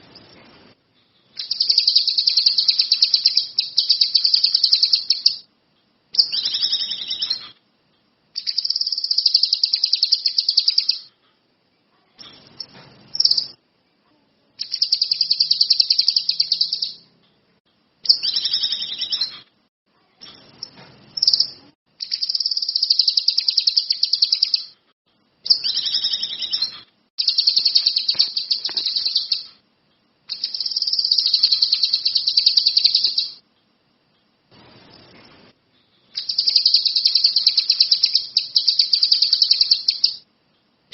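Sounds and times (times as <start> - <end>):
songbird trilling: 1.4 - 5.4, 6.2 - 7.5, 8.4 - 11.1, 14.6 - 17.0, 18.1 - 19.4, 20.6 - 24.7, 25.5 - 29.5, 30.3 - 33.4, 36.2 - 40.2.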